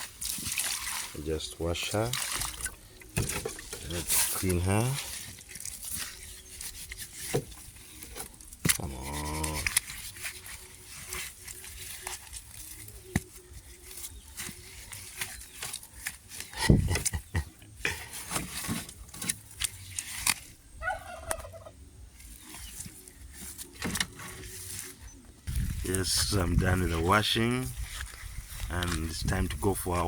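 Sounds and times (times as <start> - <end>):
turkey gobbling: 20.7 - 21.8.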